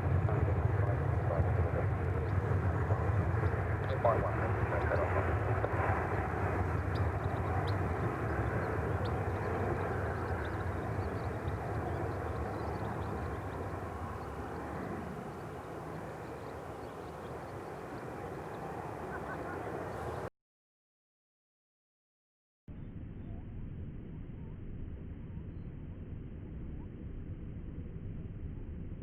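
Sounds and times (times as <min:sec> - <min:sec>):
jet engines roaring: 0:00.0 - 0:20.3.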